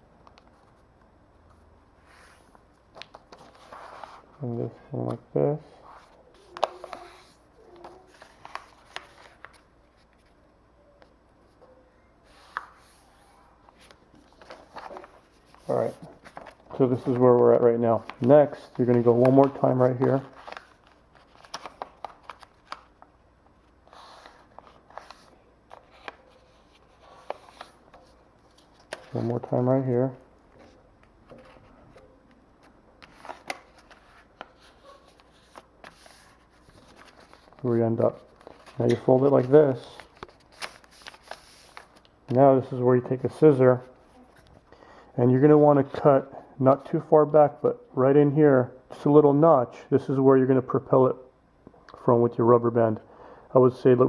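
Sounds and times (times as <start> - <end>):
paper being folded and creased: 2.1 - 4.5, 5.8 - 10.3, 12.3 - 23.1, 23.8 - 29.9, 30.6 - 42.1.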